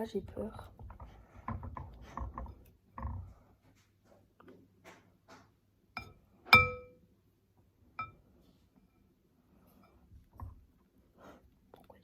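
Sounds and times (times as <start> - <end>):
ringing clink on bowl: 6.0 - 7.0.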